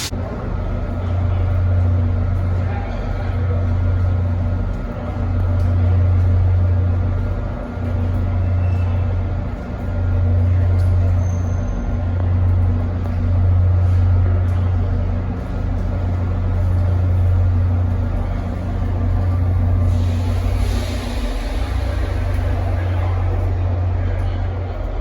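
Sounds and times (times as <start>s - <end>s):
train locomotive idling hum: 0.0s - 25.0s
hiss: 19.2s - 23.4s.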